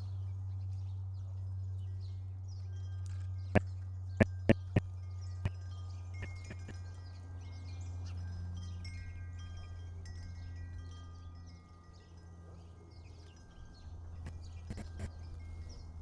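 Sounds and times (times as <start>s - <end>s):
steady low hum: 3.6s - 6.9s, 14.1s - 16.0s
chimes ringing: 4.2s - 16.0s.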